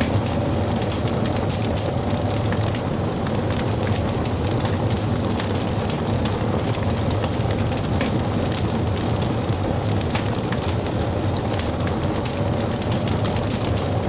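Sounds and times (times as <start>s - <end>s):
wood fire crackling: 0.0s - 14.0s
sharp pops of fire: 10.0s - 10.7s.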